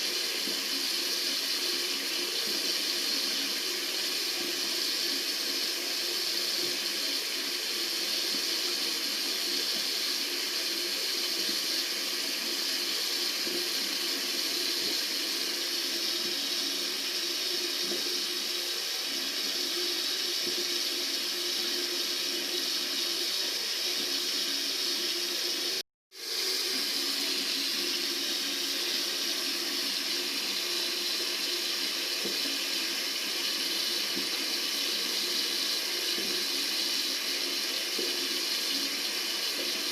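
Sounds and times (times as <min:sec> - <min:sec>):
tap water running: 0:00.0 - 0:39.9.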